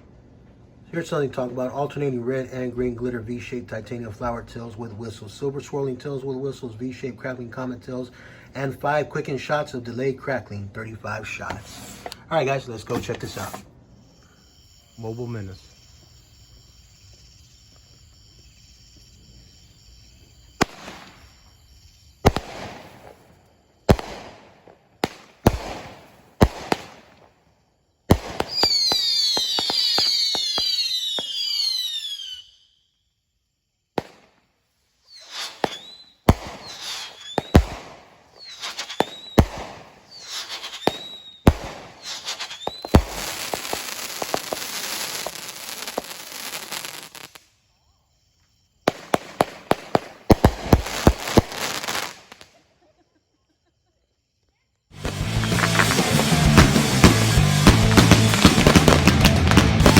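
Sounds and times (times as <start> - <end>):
firework crackling: 11.3 - 12.2, 12.9 - 27.4, 28.1 - 32.4, 34.0 - 47.6, 48.9 - 52.6, 55.0 - 59.9
firework shots banging: 12.9 - 13.7, 20.5 - 27.4, 28.1 - 31.6, 34.0 - 34.4, 35.2 - 47.3, 48.9 - 52.5, 55.0 - 59.9
firework whistles falling in pitch: 12.9 - 27.3, 28.1 - 33.2, 35.0 - 47.6, 48.9 - 52.4, 55.0 - 59.9.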